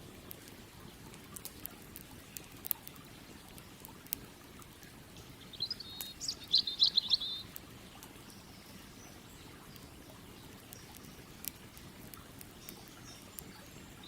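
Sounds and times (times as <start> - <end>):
campfire crackling: 0.0 - 14.0
songbird chirping: 5.1 - 14.0.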